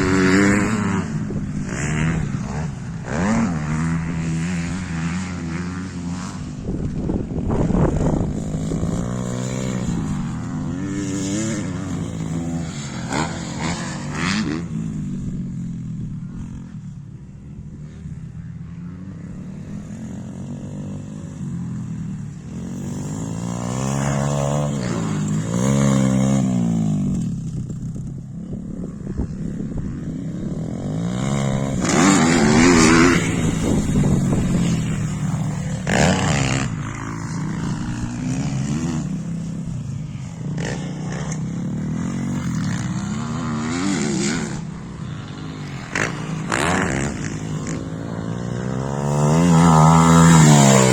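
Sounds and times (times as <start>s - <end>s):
pit bike engine revving: 30.6s - 39.7s, 40.6s - 50.9s.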